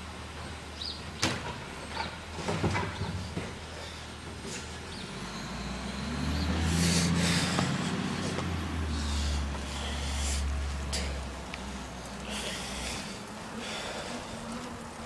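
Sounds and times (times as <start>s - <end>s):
garbage truck engine revving: 4.8s - 11.2s.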